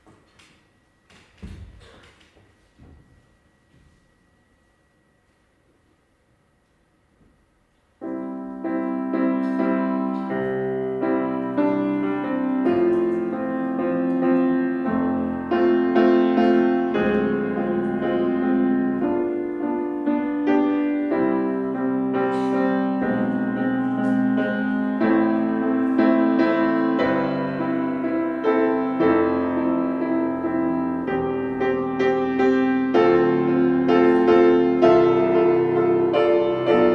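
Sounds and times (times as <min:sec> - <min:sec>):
piano playing chords: 0:08.0 - 0:36.9.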